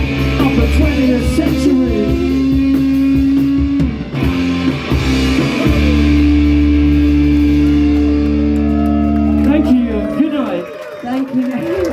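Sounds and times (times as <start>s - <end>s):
rock band electric guitars: 0.0s - 10.2s.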